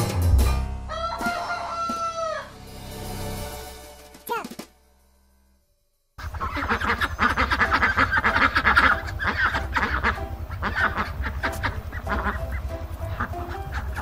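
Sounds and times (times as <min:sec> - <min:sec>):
ducks quacking: 0:06.2 - 0:14.0
low steady rumble: 0:07.2 - 0:14.0.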